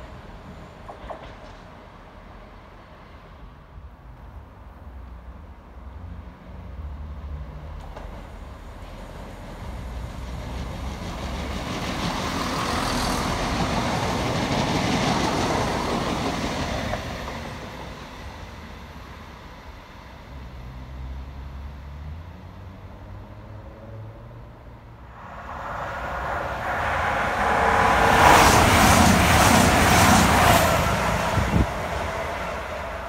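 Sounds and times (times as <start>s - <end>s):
diesel train passing: 5.8s - 21.9s, 24.8s - 33.0s.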